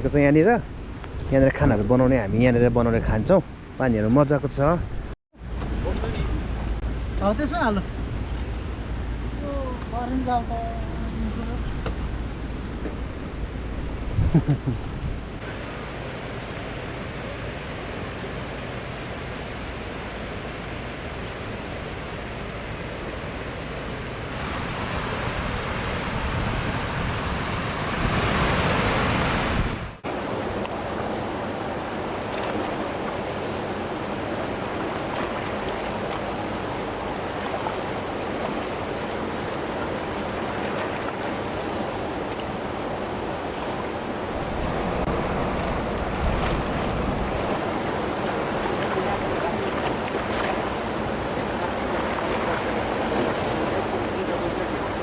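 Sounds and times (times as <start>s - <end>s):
fast river rushing: 15.4s - 55.0s.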